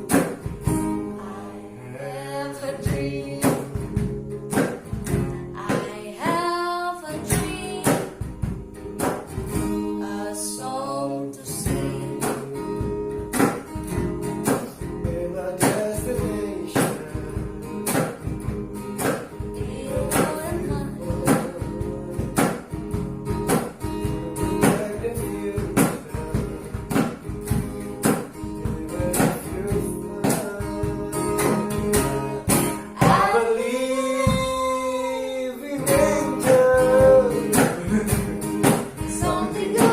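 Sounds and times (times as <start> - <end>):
person singing: 0.0 - 4.0, 5.4 - 8.1, 9.8 - 12.8, 18.6 - 22.4, 28.5 - 39.9
acoustic guitar strumming: 0.0 - 39.9.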